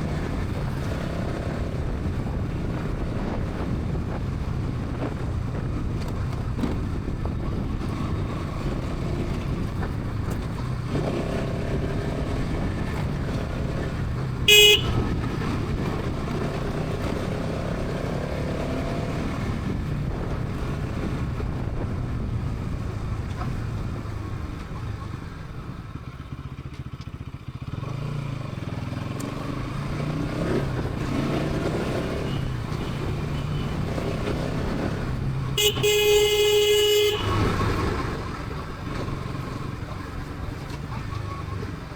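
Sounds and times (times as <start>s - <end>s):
motorcycle engine and exhaust: 0.0s - 41.9s
vehicle horn honk: 14.5s - 15.3s, 35.6s - 37.8s.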